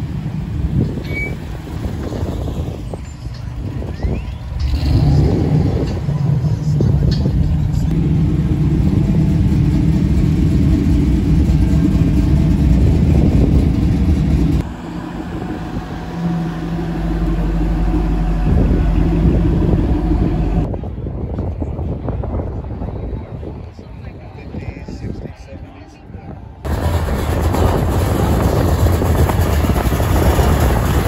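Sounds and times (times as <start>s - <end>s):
classic car engines passing: 0.0s - 20.7s
hot-rod engine low note: 0.0s - 20.8s.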